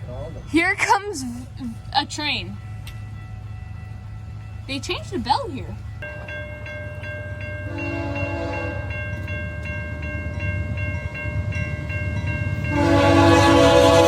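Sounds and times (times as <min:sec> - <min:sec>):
approaching train rumble: 0:00.0 - 0:14.0
electronic crossing bell ringing: 0:01.8 - 0:14.0
train horn blasts: 0:07.6 - 0:09.0, 0:12.6 - 0:14.0.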